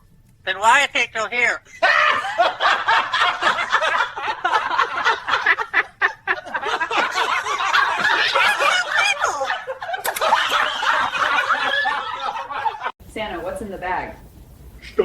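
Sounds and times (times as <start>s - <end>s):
people laughing: 1.7s - 13.0s.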